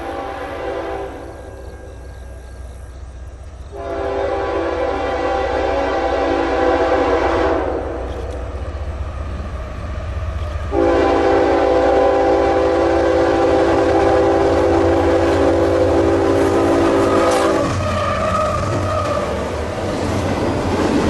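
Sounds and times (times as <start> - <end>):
locomotive air horn: 0.0 - 1.7, 3.7 - 8.3, 10.7 - 19.4
train rumbling: 0.0 - 21.0.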